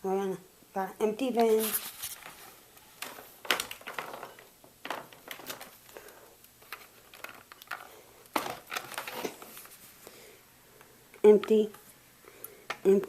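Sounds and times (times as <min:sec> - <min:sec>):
light plastic rattling: 0:03.0 - 0:09.8.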